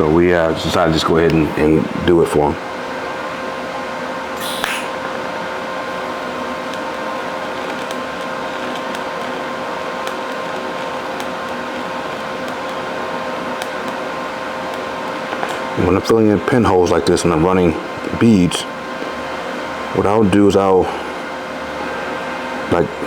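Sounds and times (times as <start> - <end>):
electrical hum: 0.0 - 23.0
even hiss: 4.4 - 5.1.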